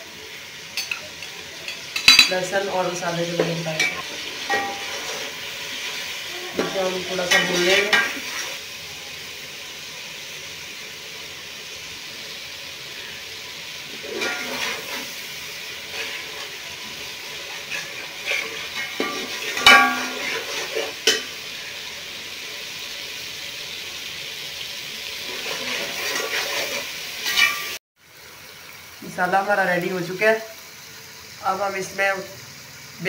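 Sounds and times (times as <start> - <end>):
masala sizzling in hot oil: 0.0 - 33.0
metal spoon scraping a pot: 3.8 - 5.3, 14.0 - 15.2, 17.5 - 21.2, 25.2 - 27.8.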